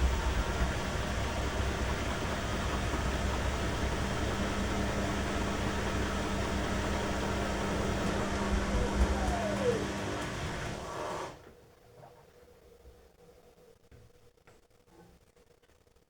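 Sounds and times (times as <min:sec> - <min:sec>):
falling whine: 0:00.0 - 0:10.9
washing machine running: 0:00.0 - 0:11.5.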